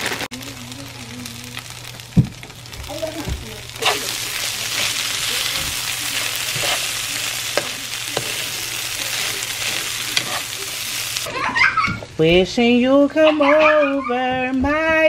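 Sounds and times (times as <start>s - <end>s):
potatoes sizzling in a frying pan: 0.0s - 11.3s
utensil scraping a pan: 3.8s - 11.1s.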